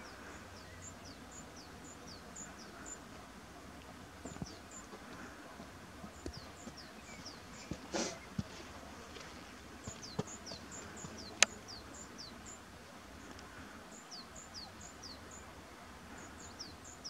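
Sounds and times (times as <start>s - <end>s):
faint outdoor hiss: 0.0s - 17.0s
small bird calling: 9.8s - 12.6s.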